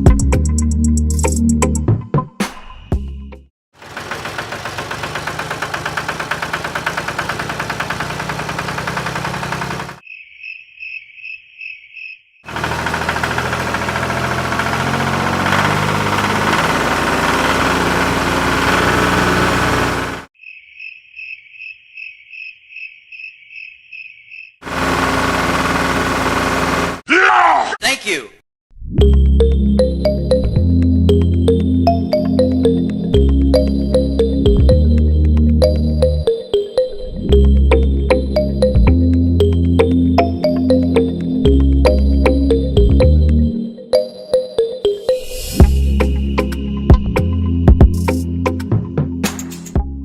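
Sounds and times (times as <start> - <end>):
small engine running: 3.8 - 10.0, 12.5 - 20.3, 24.6 - 27.0.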